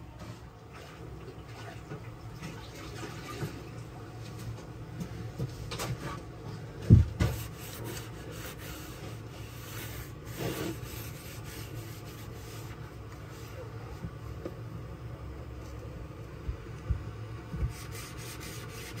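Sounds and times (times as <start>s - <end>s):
hand scraping on hard surface: 7.2s - 13.6s.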